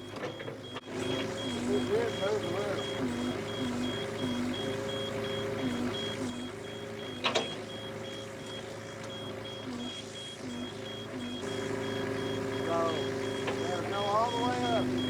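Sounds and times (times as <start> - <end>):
mini excavator running: 0.0 - 15.0
rapid high-pitched beeping: 1.0 - 6.5, 9.5 - 15.0.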